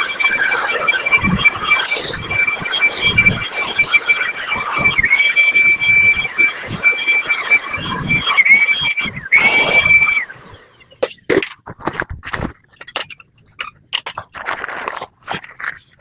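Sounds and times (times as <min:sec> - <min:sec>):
machine whining and hissing: 0:00.0 - 0:10.9.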